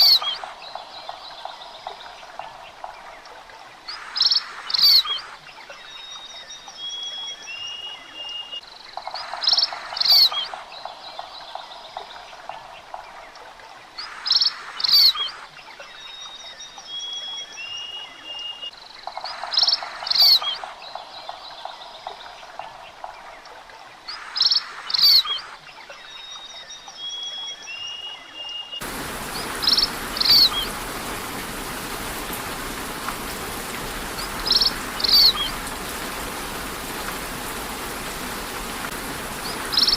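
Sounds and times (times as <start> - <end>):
rain falling: 0.0 - 26.6, 28.8 - 39.9
loud paired bird call: 28.8 - 39.9
low rapid bird trill: 28.8 - 39.9.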